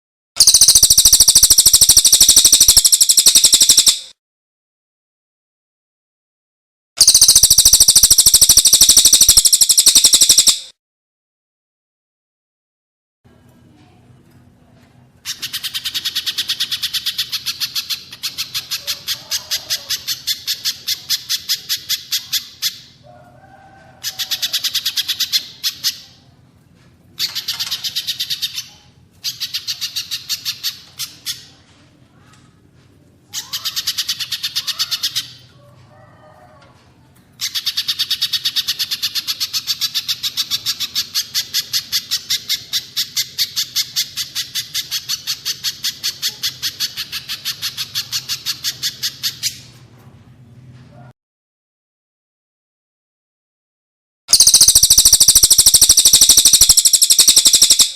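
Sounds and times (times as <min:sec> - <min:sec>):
songbird chip notes: 0:54.3 - 0:57.9.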